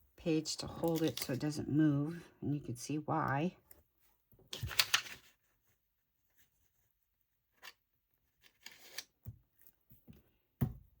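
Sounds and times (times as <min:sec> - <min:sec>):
small handling sounds: 0:00.6 - 0:02.2, 0:03.6 - 0:10.6
paper rustling on a tabletop: 0:04.5 - 0:06.8.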